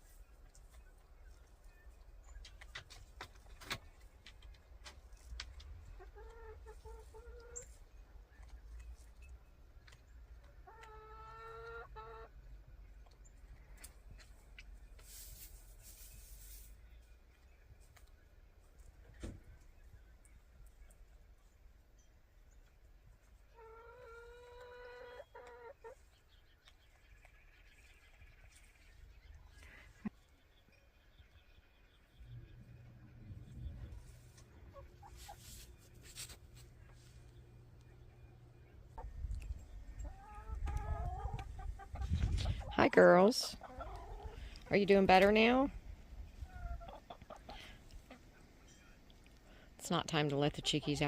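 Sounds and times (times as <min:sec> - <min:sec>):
hen clucking: 0:05.1 - 0:09.2, 0:09.8 - 0:13.2, 0:23.2 - 0:28.9, 0:32.2 - 0:49.1, 0:49.9 - 0:51.0.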